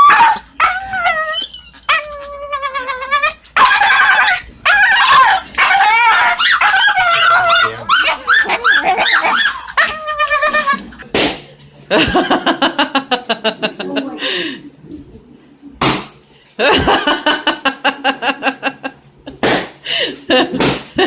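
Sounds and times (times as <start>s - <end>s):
dog whining and yelping: 0.0s - 11.0s.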